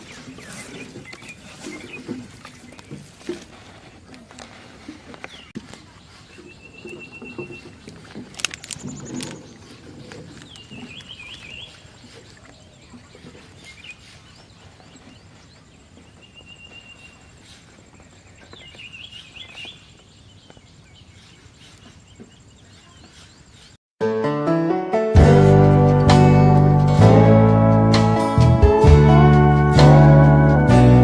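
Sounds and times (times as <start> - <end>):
birds calling: 4.8 - 23.8.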